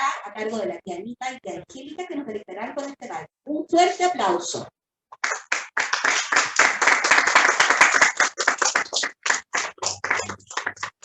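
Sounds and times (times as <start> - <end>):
audience clapping: 5.2 - 11.0.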